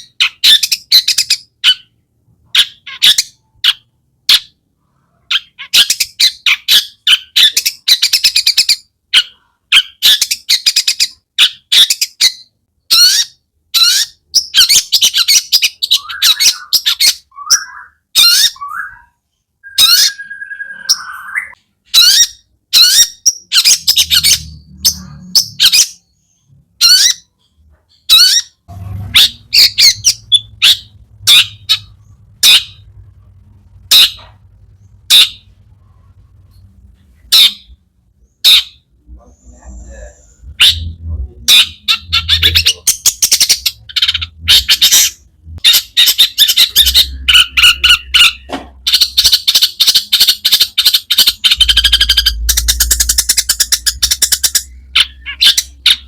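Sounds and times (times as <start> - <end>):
bird singing sharp calls and chatters: 0.0 - 56.0
faint low hum: 28.6 - 56.0.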